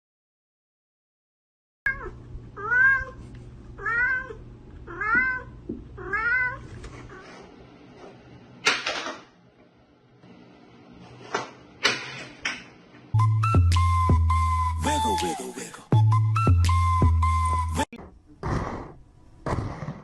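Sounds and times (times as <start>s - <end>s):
cat meowing: 1.9s - 3.2s, 3.8s - 7.3s.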